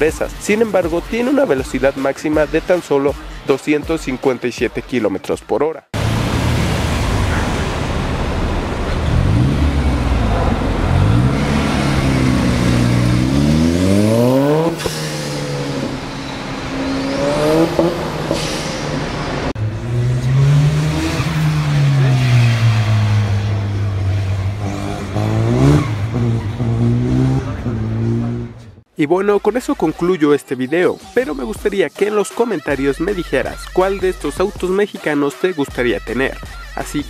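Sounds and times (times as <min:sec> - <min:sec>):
sports car engine revving: 0:06.0 - 0:28.8.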